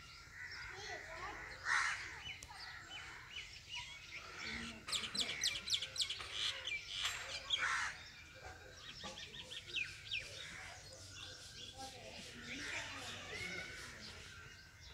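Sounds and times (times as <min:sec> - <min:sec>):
birds chirping and twittering: 0:00.0 - 0:14.9.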